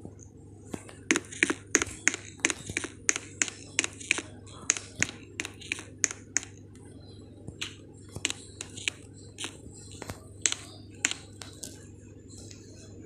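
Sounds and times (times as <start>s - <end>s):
steady low hum: 0.0s - 13.0s
sharp irregular clicks: 1.0s - 6.6s, 7.5s - 11.6s.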